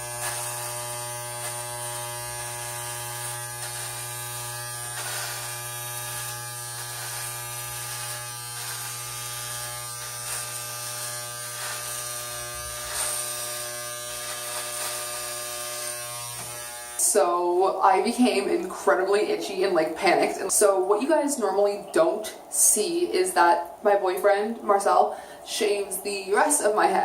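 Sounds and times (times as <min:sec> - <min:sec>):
electric hair clippers buzzing: 0:00.0 - 0:17.4
blades brushing through hair: 0:00.0 - 0:27.0.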